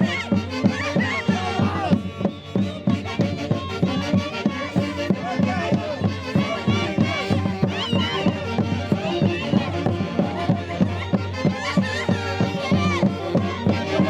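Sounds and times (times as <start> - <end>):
band playing festival music: 0.0 - 14.0.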